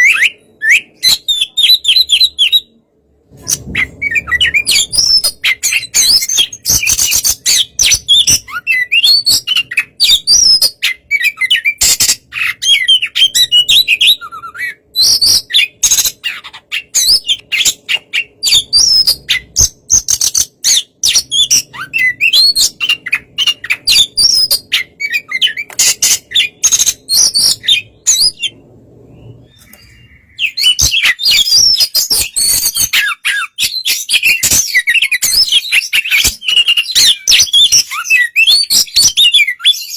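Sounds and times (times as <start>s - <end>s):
bird singing chirps and whistles: 0.0s - 2.8s, 3.4s - 39.9s.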